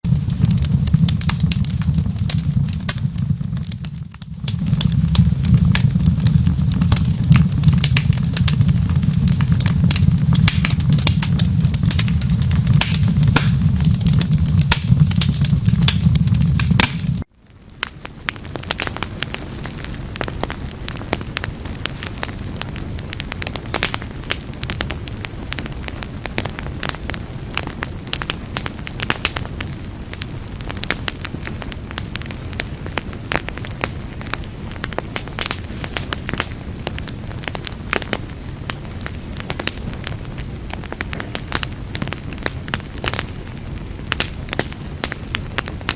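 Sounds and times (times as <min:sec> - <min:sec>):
deep steady rumble: 0:00.0 - 0:17.3
wood fire crackling and popping: 0:00.0 - 0:45.9.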